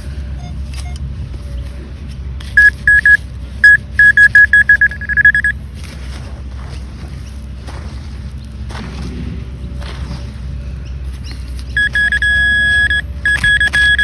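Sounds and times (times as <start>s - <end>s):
metal detector pinpointer beeping: 2.6s - 5.5s, 11.8s - 14.0s.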